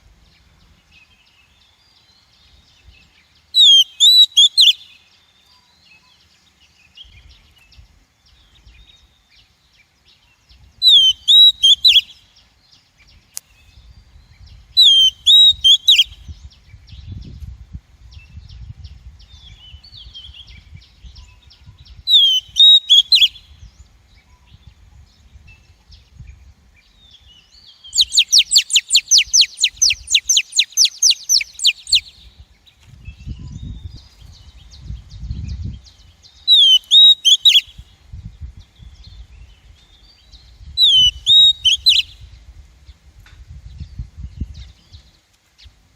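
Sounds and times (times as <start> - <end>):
bird calling sharply: 3.6 - 4.9, 22.1 - 23.4, 28.0 - 32.1, 36.5 - 37.7, 40.8 - 42.1.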